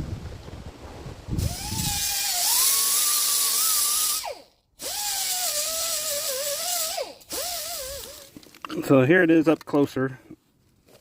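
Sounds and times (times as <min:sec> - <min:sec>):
rotary sanding tool whining on metal: 0:01.4 - 0:08.3.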